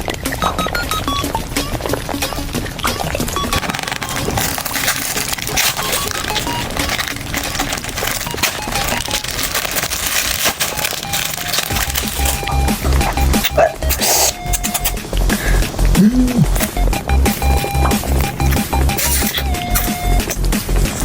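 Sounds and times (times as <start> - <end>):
chewing jelly sweets crunching: 3.6 - 15.6, 17.3 - 20.4.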